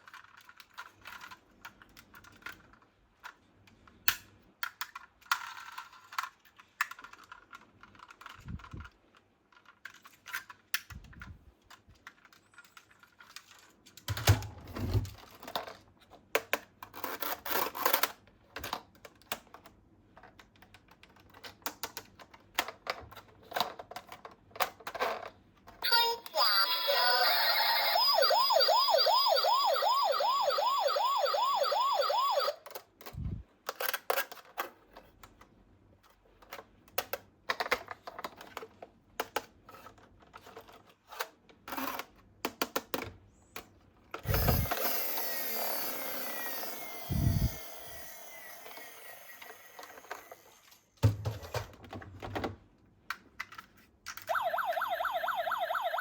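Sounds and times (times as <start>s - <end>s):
toy cars rolling: 0.0s - 3.5s, 4.6s - 10.8s, 44.2s - 50.8s
toy cars clicking and clattering: 0.0s - 14.2s, 15.2s - 25.8s, 32.7s - 46.8s, 53.1s - 54.4s
toy police siren warbling: 25.8s - 32.6s, 44.3s - 50.7s, 54.3s - 56.0s.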